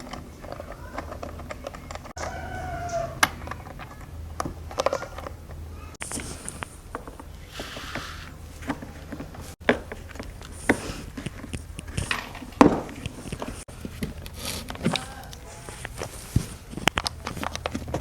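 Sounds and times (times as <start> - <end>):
parts knocking and clicking: 0.0 - 6.2.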